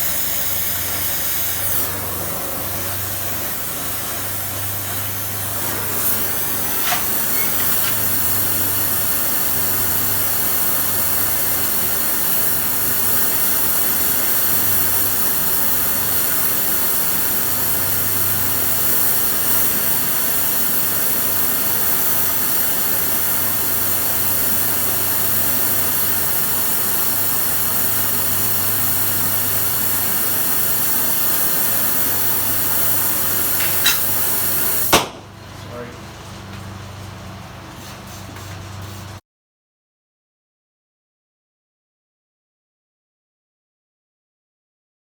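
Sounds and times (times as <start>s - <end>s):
machine whirring hiss: 0.0s - 35.8s.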